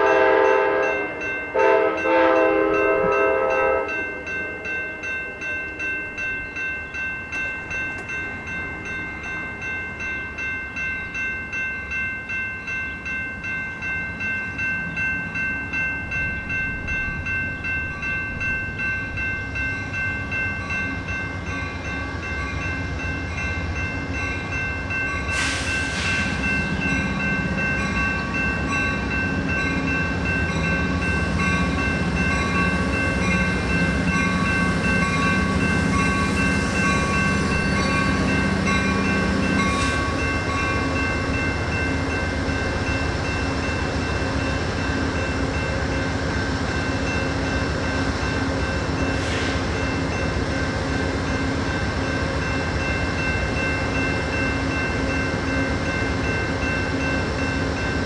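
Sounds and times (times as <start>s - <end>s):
train rumble: 0.0s - 58.0s
high ringing with pulsing beat: 3.9s - 58.0s
short hiss: 49.2s - 49.6s.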